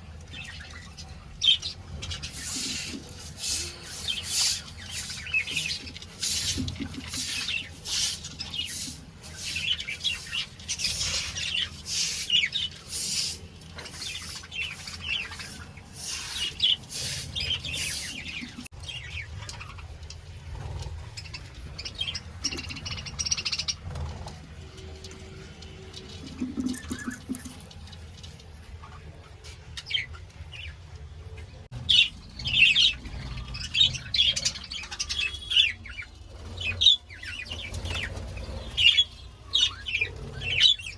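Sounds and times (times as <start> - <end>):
budgerigars chirping: 31.8 - 40.9.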